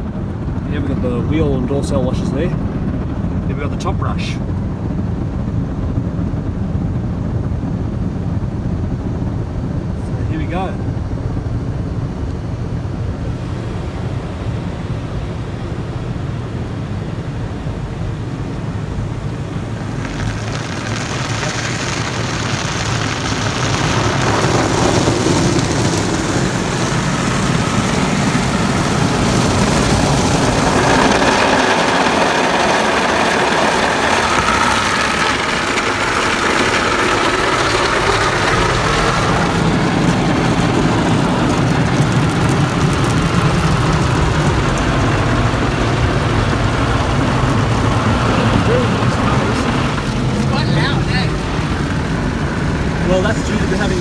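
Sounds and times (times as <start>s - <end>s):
low rumble: 0.0s - 54.0s
car wash spray and brushes: 13.0s - 54.0s.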